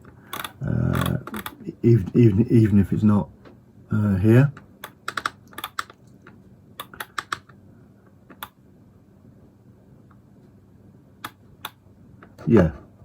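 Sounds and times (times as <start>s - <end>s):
faint steady hum: 0.0s - 13.0s
keyboard keys clicking: 4.5s - 6.2s, 6.8s - 7.6s.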